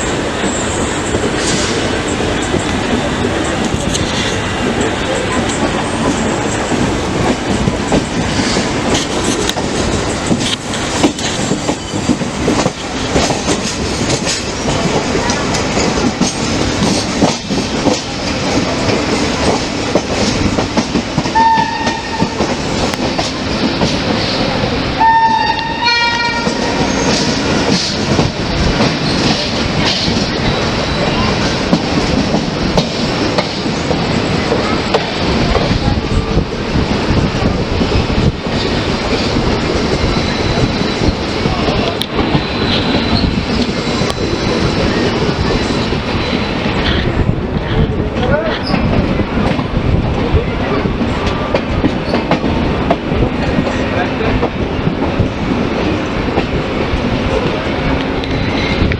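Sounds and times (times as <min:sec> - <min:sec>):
train rumbling: 0:00.0 - 0:58.9
wheels clicking over rail joints: 0:00.3 - 0:24.4
train horn blasts: 0:21.3 - 0:22.4, 0:25.0 - 0:27.1.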